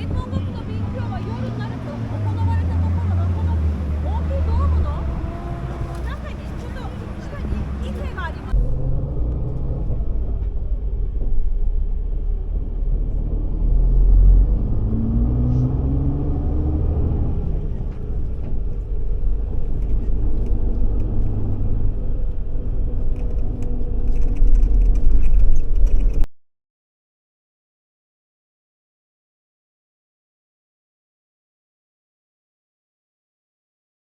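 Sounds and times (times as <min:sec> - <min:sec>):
bus engine: 0:00.0 - 0:26.3
road rumble: 0:00.0 - 0:26.3.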